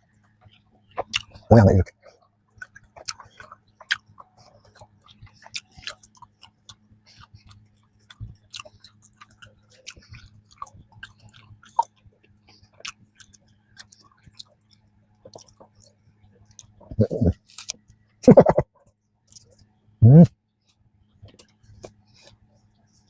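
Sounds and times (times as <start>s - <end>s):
chewing pastry with crackles: 0.0s - 23.0s
faint low hum: 0.0s - 23.0s
mouth clicks: 16.6s - 18.7s.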